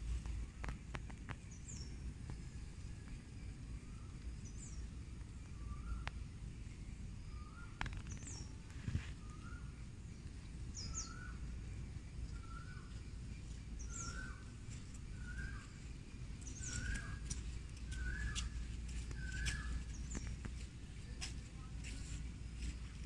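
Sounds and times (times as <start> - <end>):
low background rumble: 0.0 - 23.0
bird call with falling end: 16.4 - 20.7.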